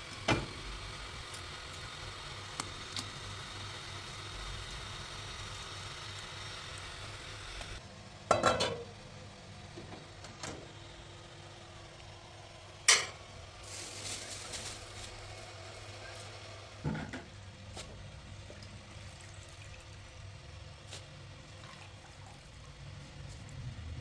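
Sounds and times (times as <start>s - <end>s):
food sizzling: 0.0s - 7.8s, 10.8s - 22.1s.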